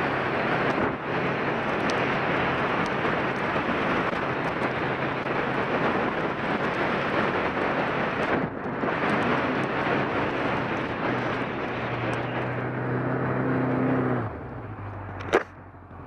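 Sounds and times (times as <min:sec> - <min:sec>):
wind rush on microphone: 0:00.0 - 0:15.5.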